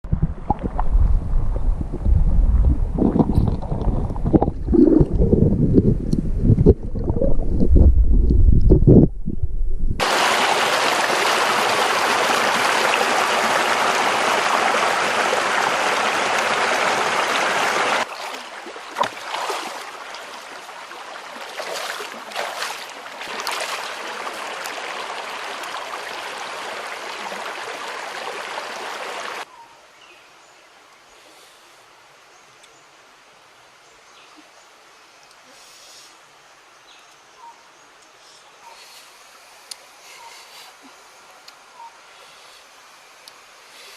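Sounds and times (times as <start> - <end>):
river water running: 10.0 - 29.5.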